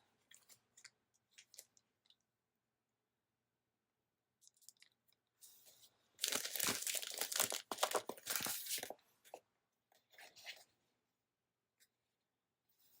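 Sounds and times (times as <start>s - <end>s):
paper sticker sheet crinkling: 6.2s - 8.9s
paper rustling: 6.2s - 9.0s.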